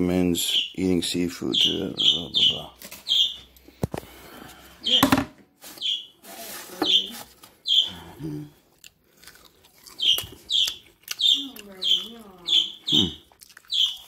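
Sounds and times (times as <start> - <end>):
bird chirping: 0.1 - 3.6, 4.8 - 5.1, 5.7 - 6.2, 6.8 - 8.4, 9.8 - 14.0
crispy fish stick crunching: 8.7 - 11.8, 13.2 - 14.0.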